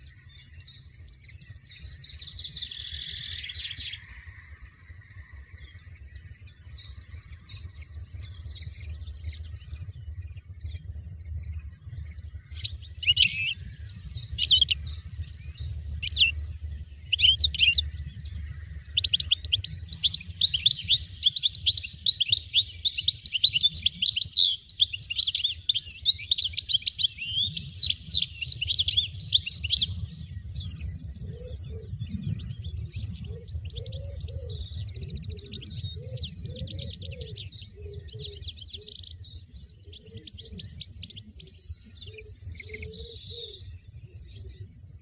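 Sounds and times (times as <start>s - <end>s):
finch call notes and twittering: 0.0s - 45.0s
low rumble: 4.0s - 20.9s.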